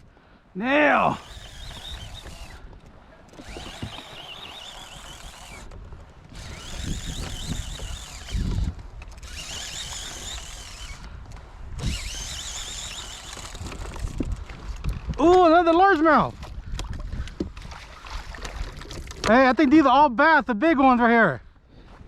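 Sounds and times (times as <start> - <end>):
fishing reel whining: 0.8 - 14.7
water splashes: 17.6 - 19.3.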